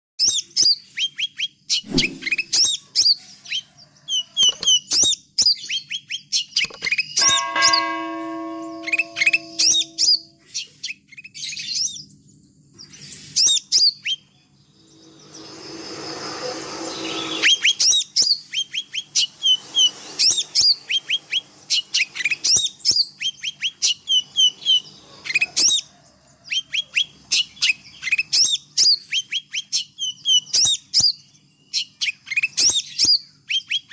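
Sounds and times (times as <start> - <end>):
brief rushing noise: 1.9 - 2.7, 14.8 - 18.0
steady pitched tone: 7.2 - 10.3, 14.7 - 17.8.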